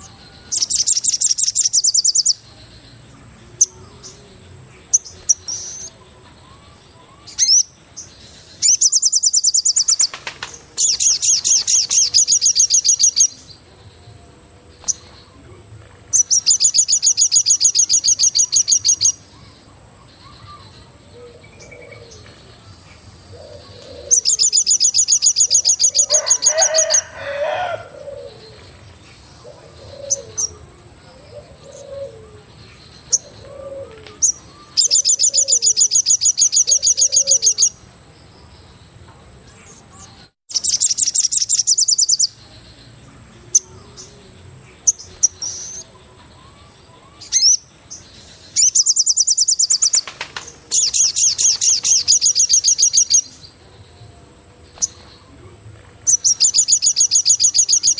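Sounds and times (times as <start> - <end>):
bird high-pitched trill: 0.0 - 2.9, 3.6 - 13.6, 16.1 - 22.2, 23.4 - 28.4, 33.0 - 37.8, 40.0 - 42.4, 44.8 - 47.8, 48.5 - 53.6, 56.0 - 57.9.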